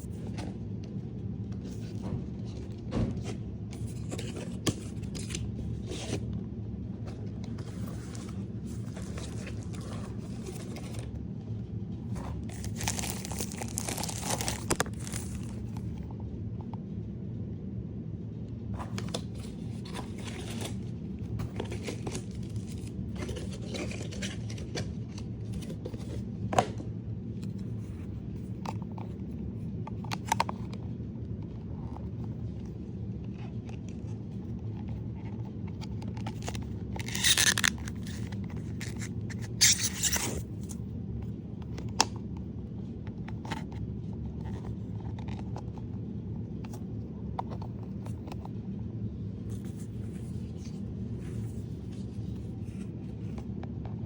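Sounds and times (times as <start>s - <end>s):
packaging crinkling and tearing: 12.3s - 15.9s, 19.0s - 20.9s, 21.5s - 25.8s, 36.2s - 40.8s.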